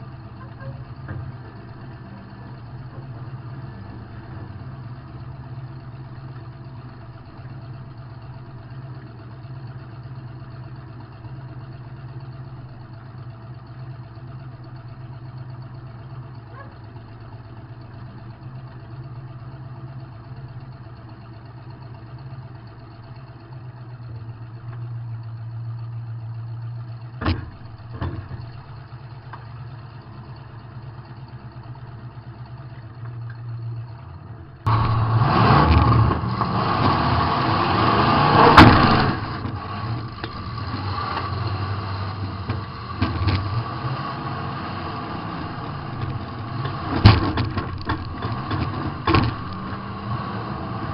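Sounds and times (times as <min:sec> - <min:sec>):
car engine running: 0:00.0 - 0:50.9.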